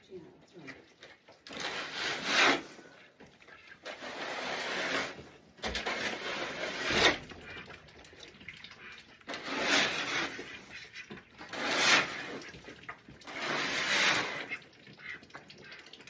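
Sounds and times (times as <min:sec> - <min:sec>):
water splashing: 0:00.4 - 0:16.0.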